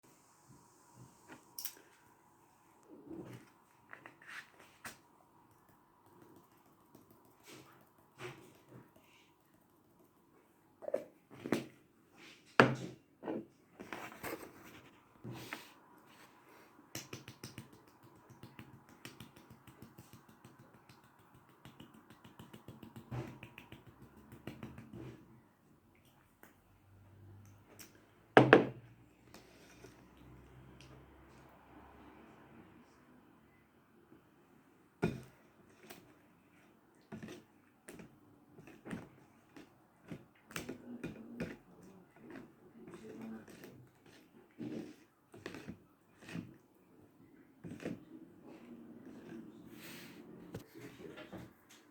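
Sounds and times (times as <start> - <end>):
eating clicks and knocks: 17.0 - 25.2.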